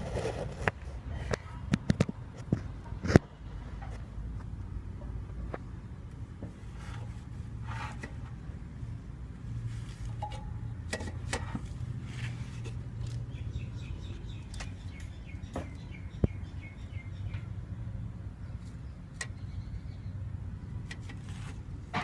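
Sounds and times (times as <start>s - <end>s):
bird chirping: 13.0s - 20.2s.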